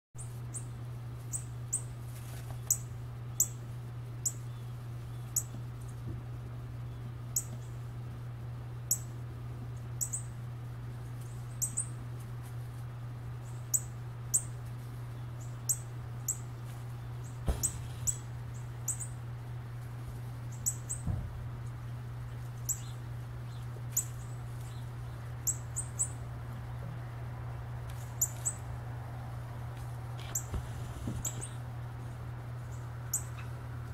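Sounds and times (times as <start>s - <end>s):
steady low hum: 0.2s - 33.9s
bird high chirps: 2.6s - 3.6s, 10.0s - 10.3s, 11.3s - 12.0s, 13.4s - 14.5s, 17.1s - 19.2s, 20.5s - 21.1s, 22.3s - 26.2s, 28.0s - 28.6s, 31.2s - 31.6s, 32.7s - 33.5s.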